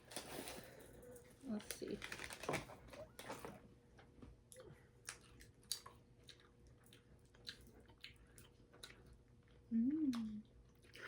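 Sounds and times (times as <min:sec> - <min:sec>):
faint close-up chewing candy: 0:04.5 - 0:11.0.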